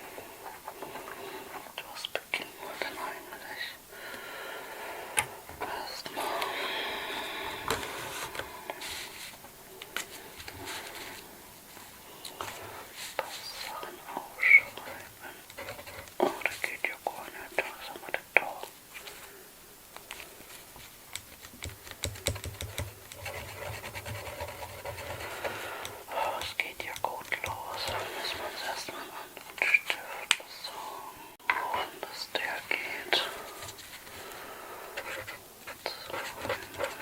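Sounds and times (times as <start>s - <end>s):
soft scratching rustle: 7.3s - 30.9s, 32.0s - 34.4s, 35.0s - 37.0s.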